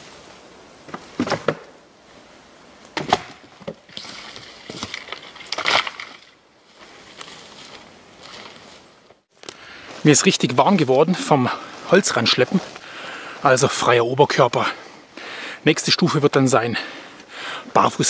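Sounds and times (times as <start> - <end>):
rustling of bark and wood: 0.0 - 18.0
dry wood cracking and snapping: 3.9 - 6.4.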